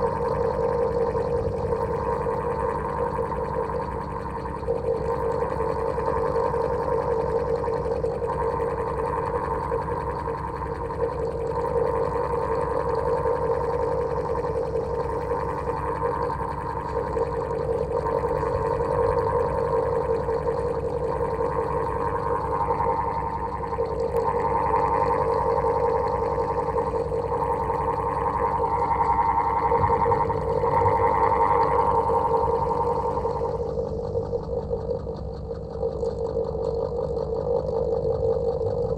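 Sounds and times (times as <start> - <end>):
electric fan humming: 28.6 - 34.1.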